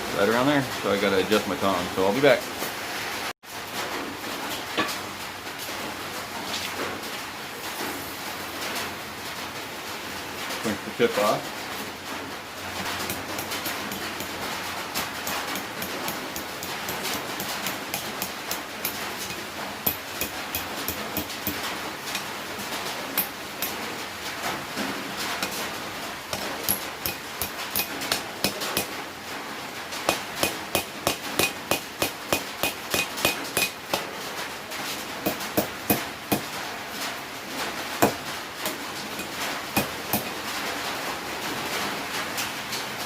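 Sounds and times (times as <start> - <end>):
hammer striking steel on anvil: 15.2 - 22.2, 26.3 - 29.0, 30.1 - 34.1, 35.2 - 36.5, 38.0 - 40.3.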